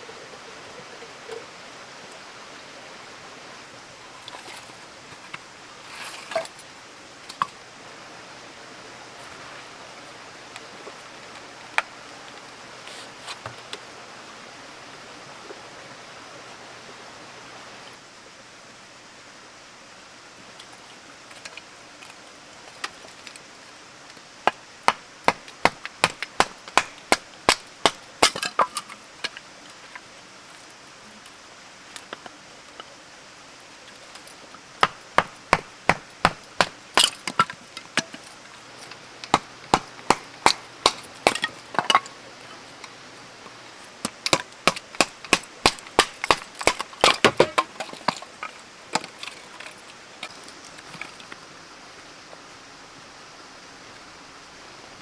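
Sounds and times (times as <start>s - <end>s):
firewood being split: 24.5s - 30.1s, 34.1s - 50.9s.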